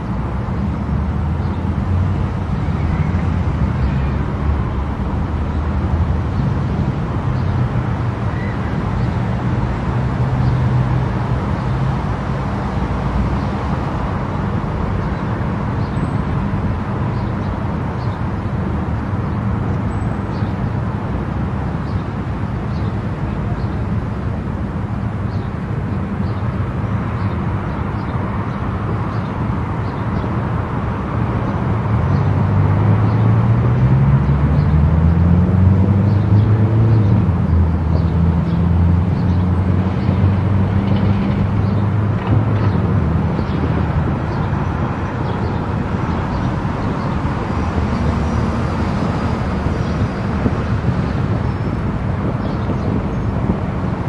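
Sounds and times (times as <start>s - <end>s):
tyre and wind noise: 0.0s - 54.0s.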